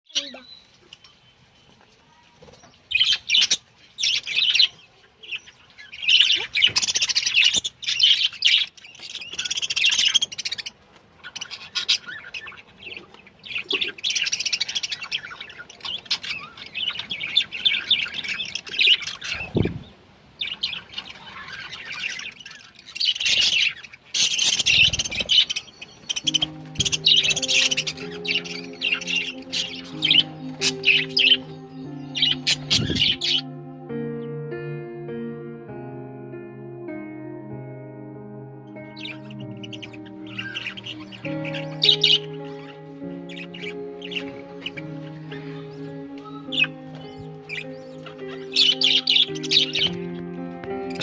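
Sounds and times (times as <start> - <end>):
budgerigars chirping and warbling: 0.1 - 33.8, 38.8 - 51.0.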